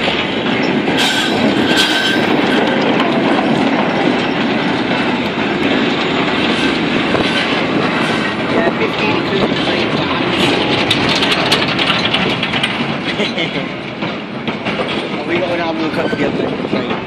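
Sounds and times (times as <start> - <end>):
wheels clattering over rail joints: 0.0 - 17.0
high wheel squeal: 1.0 - 2.7, 15.8 - 16.5.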